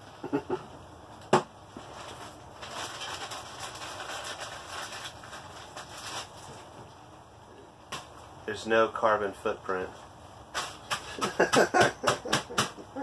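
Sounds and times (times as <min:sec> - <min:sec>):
plastic bag rustling and crackling: 0:01.7 - 0:07.0.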